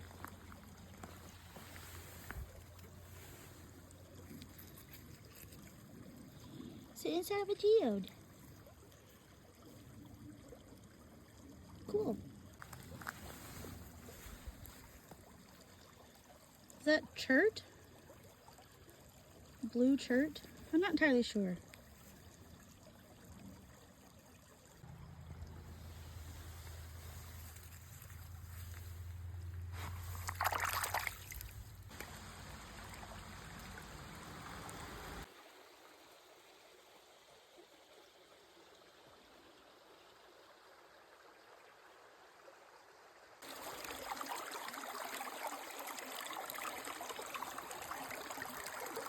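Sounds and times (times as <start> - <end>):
creek water flowing: 0.0 - 49.0.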